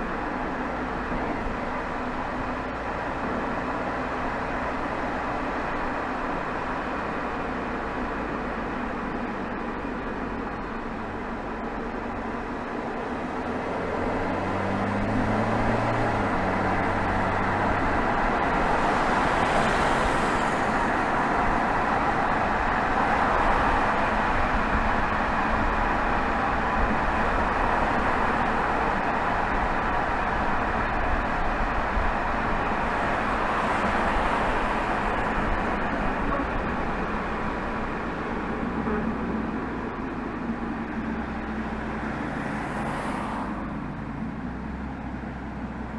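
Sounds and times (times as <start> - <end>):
diesel car exhaust: 0.0 - 42.9
tyre and road noise: 0.0 - 45.9.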